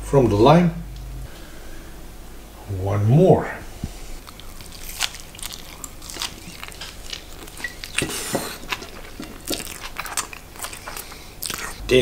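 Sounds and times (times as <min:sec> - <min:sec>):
man chewing food: 0:03.7 - 0:11.9.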